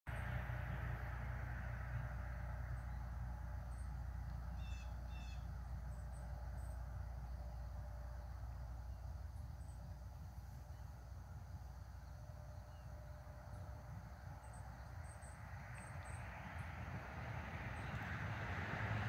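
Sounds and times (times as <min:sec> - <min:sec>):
steady low rumble: 0:00.1 - 0:19.0
bird harsh calls: 0:04.6 - 0:05.5.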